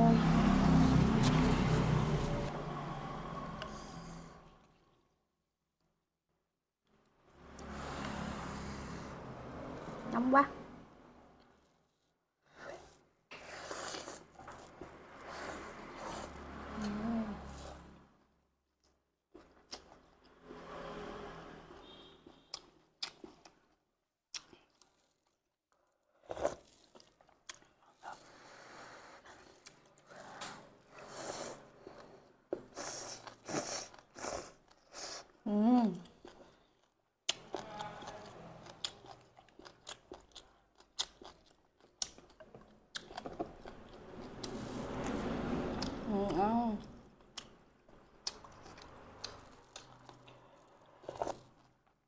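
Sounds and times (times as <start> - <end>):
chewing food: 36.0 - 52.0.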